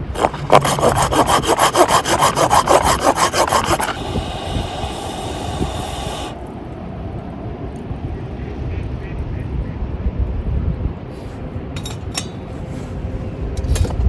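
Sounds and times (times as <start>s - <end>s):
hand saw cutting wood: 0.0s - 6.4s.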